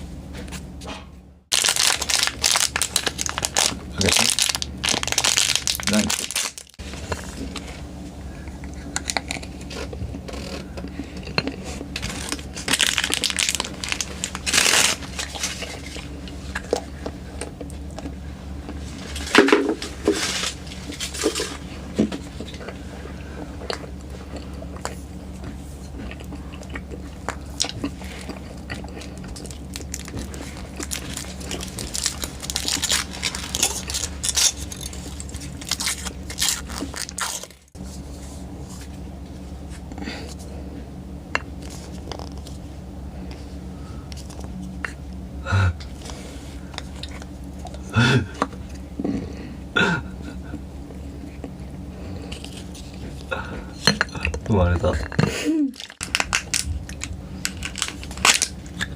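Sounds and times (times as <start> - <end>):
plastic wrapping crinkling and tearing: 1.5 - 6.8, 12.0 - 16.1, 29.4 - 37.7, 55.7 - 58.9.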